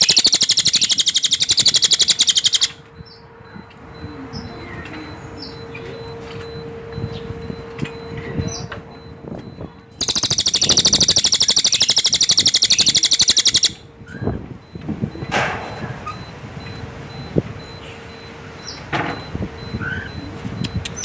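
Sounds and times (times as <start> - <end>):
bird giving rapid high-pitched trill: 0.0 - 3.6, 10.0 - 13.8.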